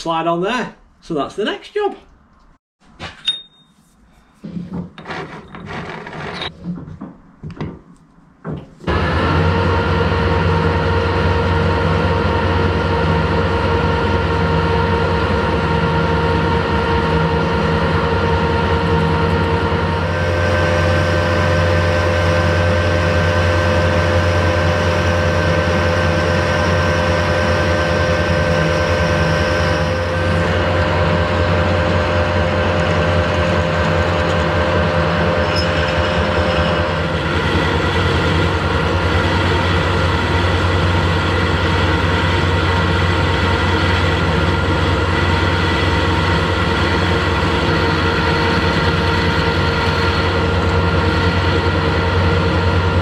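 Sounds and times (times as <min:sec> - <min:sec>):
lathe motor humming: 0:08.8 - 0:53.0.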